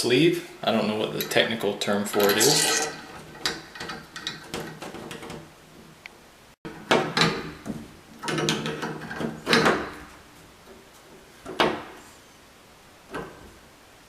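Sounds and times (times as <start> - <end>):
metal knocks and scrapes: 2.1 - 5.4.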